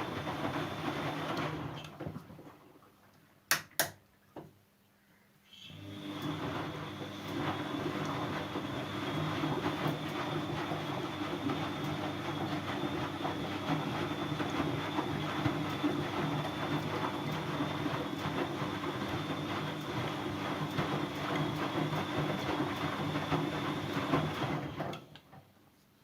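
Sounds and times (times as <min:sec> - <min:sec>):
washing machine rumbling: 0:05.9 - 0:25.0.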